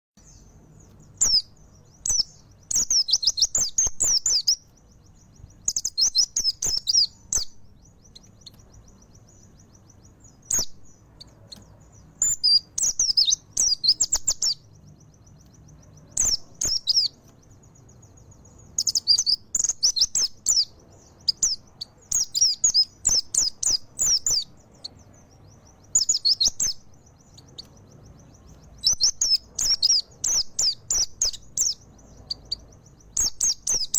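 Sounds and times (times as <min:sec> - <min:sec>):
bird twittering song: 0:00.2 - 0:33.9.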